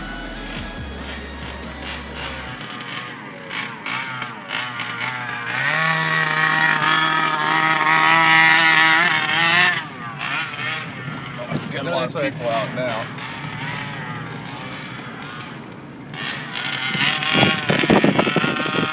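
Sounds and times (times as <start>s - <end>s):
two-stroke engine revving: 0.0s - 18.9s.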